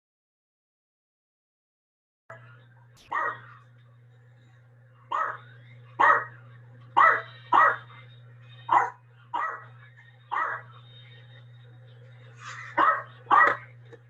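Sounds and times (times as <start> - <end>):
low steady hum: 2.3 - 14.0
dog barking: 3.1 - 3.6, 5.1 - 5.4, 6.0 - 6.4, 7.0 - 7.9, 8.7 - 9.7, 10.3 - 10.7, 12.8 - 13.7.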